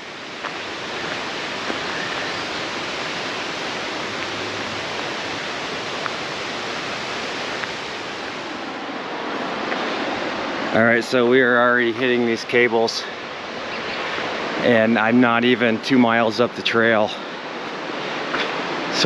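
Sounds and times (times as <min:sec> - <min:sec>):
water rushing: 0:00.0 - 0:19.0.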